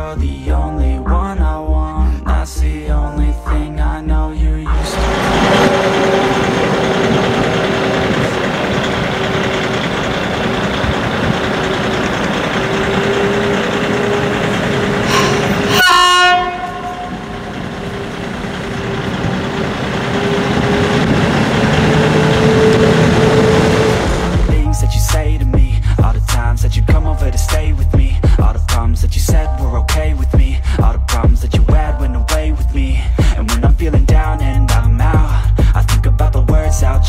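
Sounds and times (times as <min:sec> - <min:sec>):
train rumbling and whining: 0:04.7 - 0:24.8
train horn note: 0:04.8 - 0:08.3, 0:12.6 - 0:24.5.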